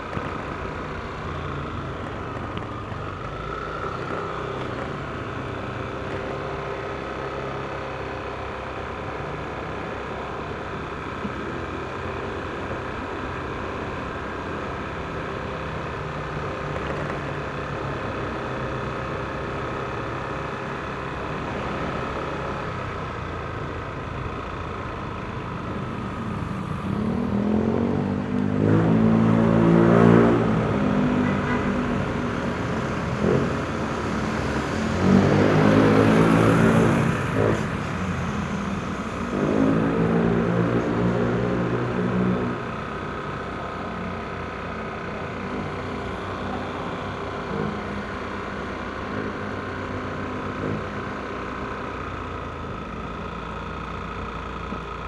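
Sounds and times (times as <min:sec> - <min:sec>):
louder engine: 0:00.0 - 0:55.0
road and wind noise: 0:00.0 - 0:55.0
scooter engine running: 0:00.0 - 0:55.0.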